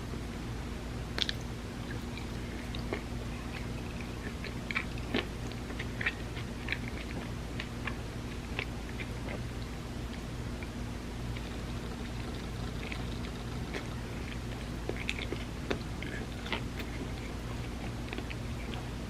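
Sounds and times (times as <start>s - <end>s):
steady low hum: 0.0s - 19.0s
mouth chewing with wet clicks: 1.1s - 19.0s.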